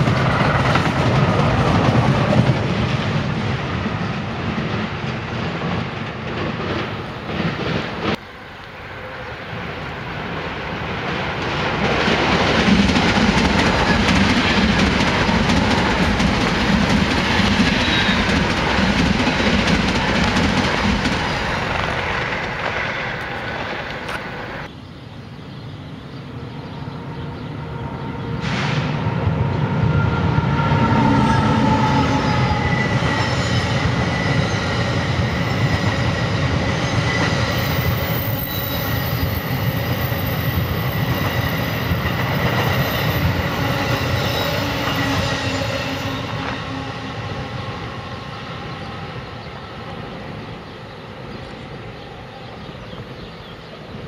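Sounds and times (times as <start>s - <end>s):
train wheels rumbling on rail: 0.0s - 24.8s, 26.2s - 54.0s
high wheel squeal: 17.4s - 18.4s, 30.0s - 47.8s.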